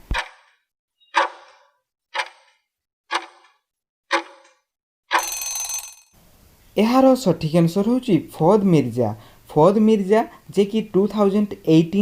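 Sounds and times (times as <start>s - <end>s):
clock ticks with short ring: 2.2s - 5.6s
bell ringing: 5.2s - 6.1s.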